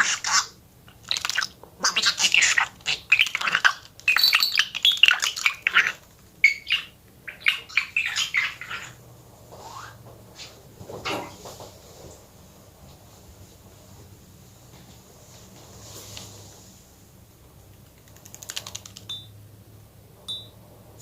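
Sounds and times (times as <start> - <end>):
budgerigar chattering and warbling: 0.0 - 9.0.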